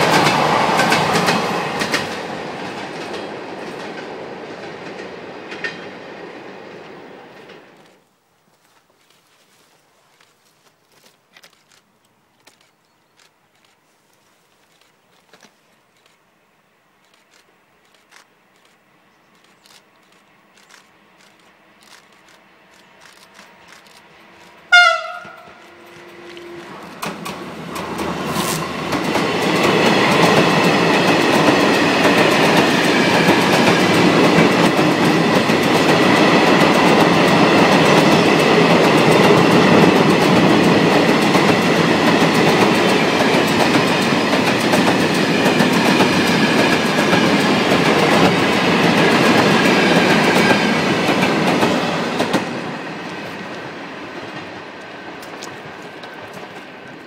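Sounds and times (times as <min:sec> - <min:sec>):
train rolling past: 0:00.0 - 0:08.0, 0:19.9 - 0:57.0
locomotive horn blast: 0:24.7 - 0:26.9.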